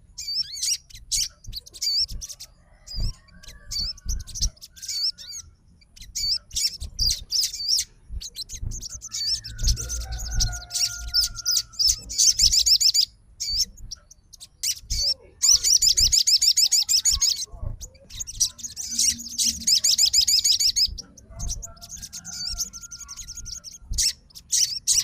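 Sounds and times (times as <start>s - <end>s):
bird singing high trills: 0.0s - 25.0s.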